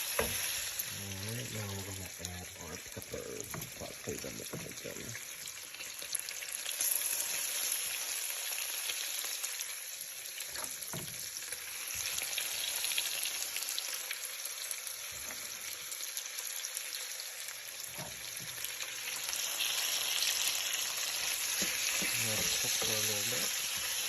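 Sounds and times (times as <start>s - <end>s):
food sizzling in a pan: 0.0s - 24.0s
faint stirring knocks: 3.1s - 5.0s, 21.6s - 23.0s.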